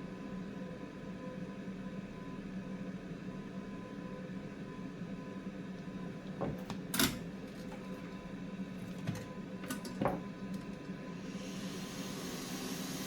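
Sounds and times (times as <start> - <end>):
bench equipment hum: 5.8 - 13.0.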